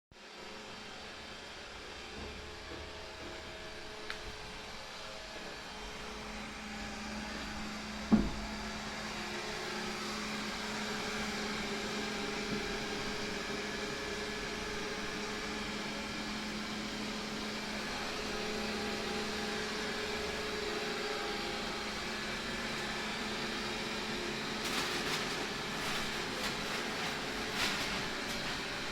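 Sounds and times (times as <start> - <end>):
vacuum cleaner humming: 0.2 - 28.9
sharp thump: 8.1 - 8.5.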